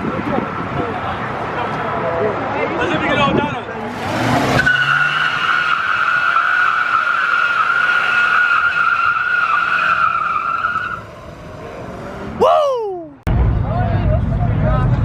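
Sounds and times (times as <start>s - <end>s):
car tyres squealing: 3.8s - 12.7s.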